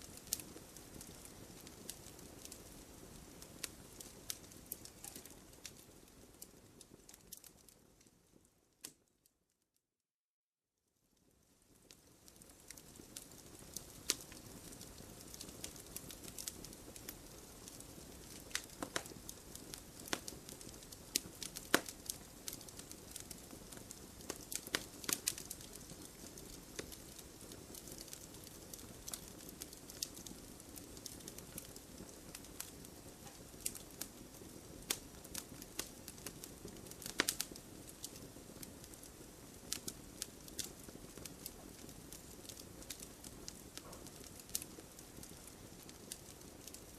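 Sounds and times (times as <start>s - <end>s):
low rush of flames: 0.0s - 8.4s
campfire crackles and pops: 0.0s - 9.1s, 11.2s - 46.9s.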